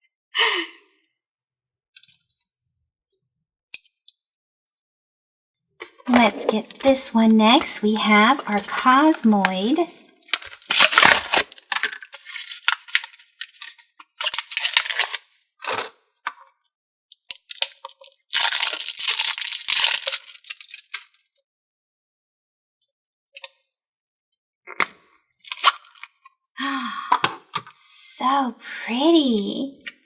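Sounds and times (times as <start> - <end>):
slime crackling and tearing: 8.4 - 13.6, 17.2 - 21.1.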